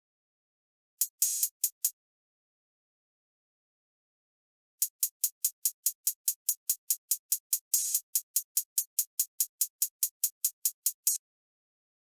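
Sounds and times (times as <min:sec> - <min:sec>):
closed hi-hat ticks: 0:01.0 - 0:02.0, 0:04.8 - 0:11.2.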